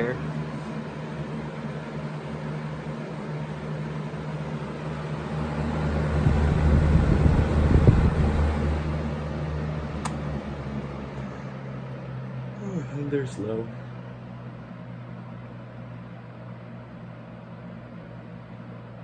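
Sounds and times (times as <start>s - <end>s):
box fan running: 0.0s - 19.0s
fan click: 4.9s - 9.0s, 9.9s - 10.4s.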